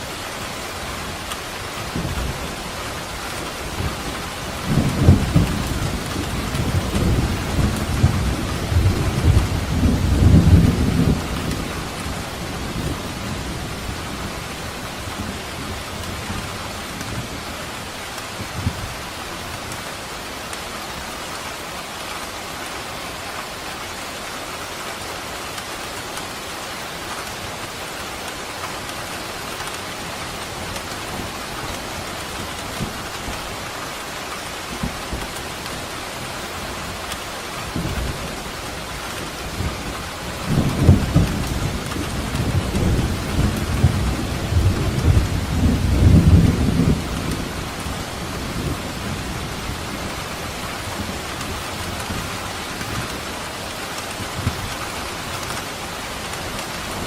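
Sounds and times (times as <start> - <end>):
steady rain falling: 0.0 - 57.0
thunder rumbling: 1.8 - 17.4, 36.9 - 57.0.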